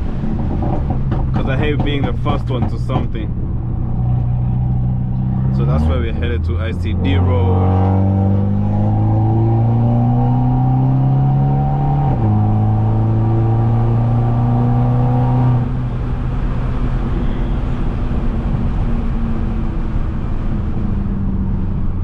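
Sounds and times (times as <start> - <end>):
car exhaust drone: 0.0 - 22.0
road noise: 0.0 - 22.0.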